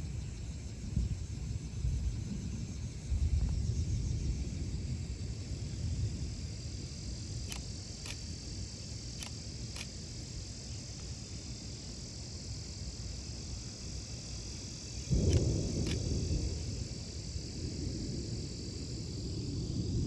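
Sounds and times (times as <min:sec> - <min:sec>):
crickets chirring: 0:00.0 - 0:20.0
faint clicks: 0:07.4 - 0:08.2, 0:09.2 - 0:09.9, 0:15.2 - 0:16.1.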